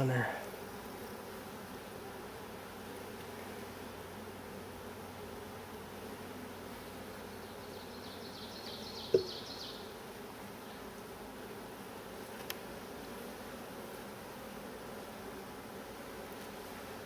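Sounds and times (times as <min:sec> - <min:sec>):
honeybees buzzing: 0:00.0 - 0:17.0
small click: 0:12.4 - 0:12.6.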